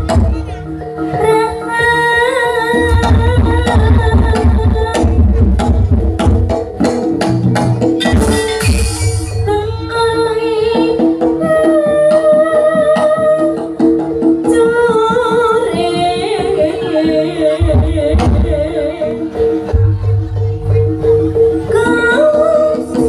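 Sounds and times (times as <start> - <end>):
drum beats: 0.0 - 2.0, 2.7 - 23.0
person singing: 14.5 - 19.4.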